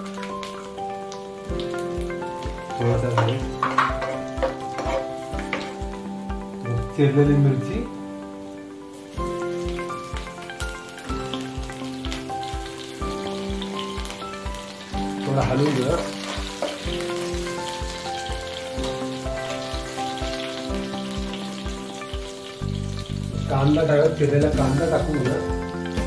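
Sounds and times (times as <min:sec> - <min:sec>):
background music with beat: 0:00.0 - 0:26.0
food sizzling in hot oil: 0:00.0 - 0:26.0
ladle stirring in pan: 0:03.1 - 0:05.8.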